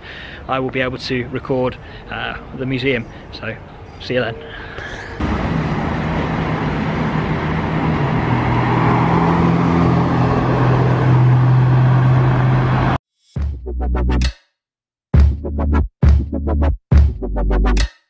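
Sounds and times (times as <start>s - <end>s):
road and wind noise: 0.0s - 13.0s
vehicle engine hum: 4.4s - 13.0s.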